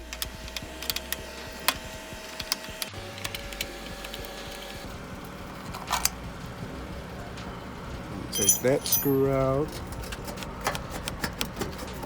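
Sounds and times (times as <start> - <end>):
clicks and taps of plastic parts: 0.0 - 4.7, 9.7 - 12.0
steady low hum: 0.0 - 12.0.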